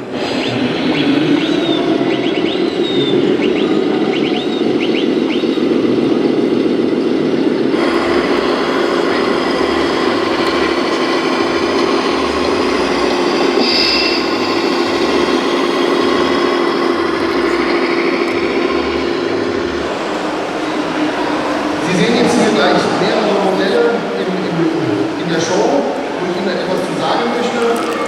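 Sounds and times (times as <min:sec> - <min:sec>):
model truck electric motors humming: 0:00.0 - 0:28.0.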